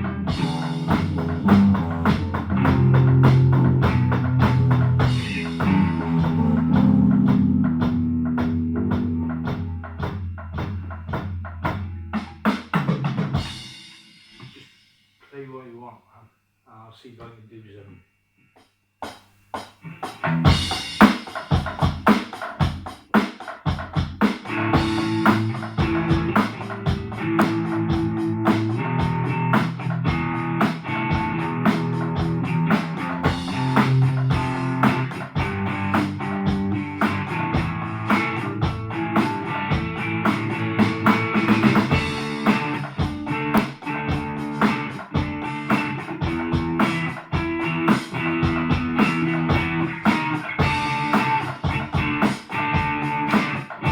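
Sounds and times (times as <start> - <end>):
held guitar notes: 0.0 - 9.9, 24.5 - 53.9
drum hits: 0.0 - 14.7, 19.0 - 53.9.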